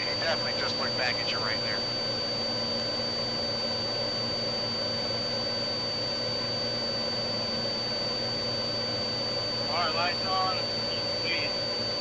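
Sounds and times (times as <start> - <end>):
aircraft engine drone: 0.0 - 2.0, 9.6 - 11.6.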